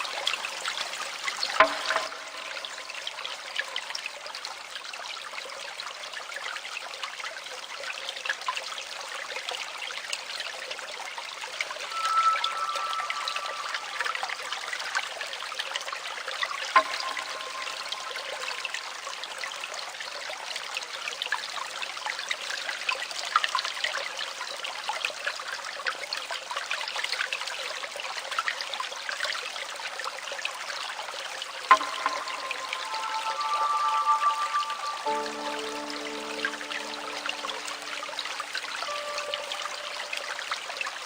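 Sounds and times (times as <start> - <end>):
babbling stream water: 0.0 - 41.0
sharp click with ringing tone: 16.8 - 18.7, 31.7 - 38.1.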